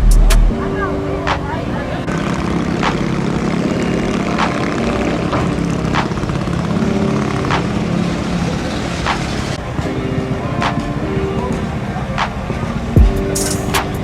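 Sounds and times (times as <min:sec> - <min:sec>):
sharp hits: 0:00.0 - 0:00.6
vehicle engine droning: 0:00.0 - 0:14.0.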